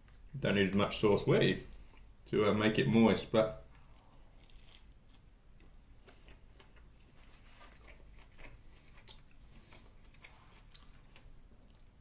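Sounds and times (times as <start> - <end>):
person chewing food: 3.7 - 12.0.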